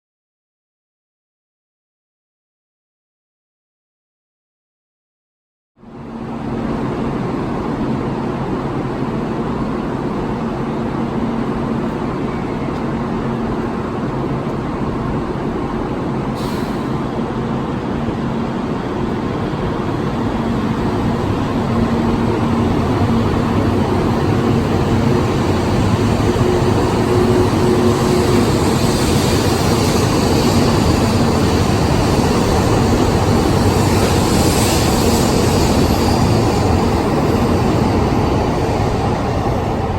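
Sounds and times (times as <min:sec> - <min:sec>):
high-speed train rushing: 0:05.8 - 0:39.9
hiss: 0:16.3 - 0:17.0, 0:26.1 - 0:37.7.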